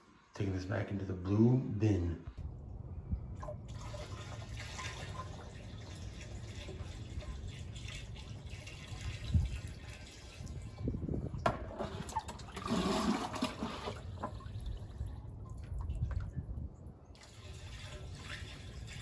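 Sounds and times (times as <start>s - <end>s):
water sloshing in a bucket: 3.4s - 19.0s.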